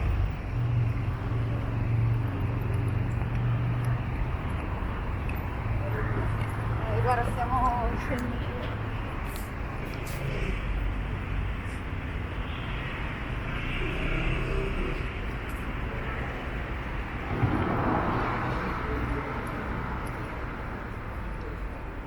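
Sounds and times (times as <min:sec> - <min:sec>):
traffic rumble: 0:00.0 - 0:22.0
vehicle passing: 0:17.0 - 0:20.8.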